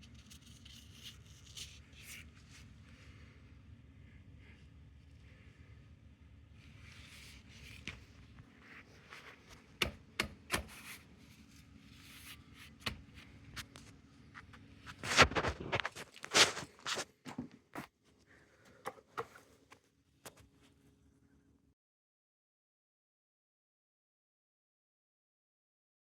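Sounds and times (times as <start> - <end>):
scraping and rubbing: 13.6 - 17.2.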